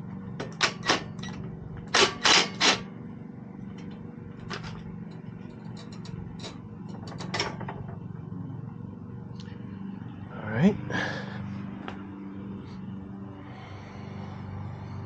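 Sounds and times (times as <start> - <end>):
steady low hum: 0.0 - 15.0
hand tools clicking and scraping metal: 0.4 - 2.9, 3.8 - 7.6.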